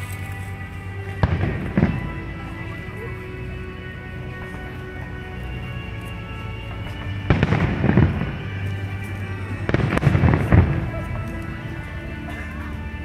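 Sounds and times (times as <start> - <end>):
background music: 0.0 - 13.0
fireworks bangs and crackle: 1.2 - 2.6, 6.7 - 12.1.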